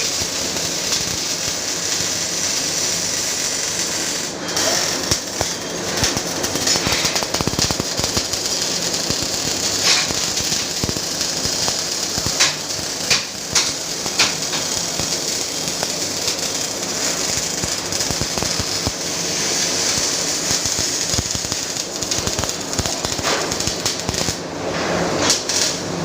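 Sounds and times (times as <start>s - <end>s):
sharp welding pops: 0.0s - 25.8s
welding arc crackling: 0.0s - 26.0s.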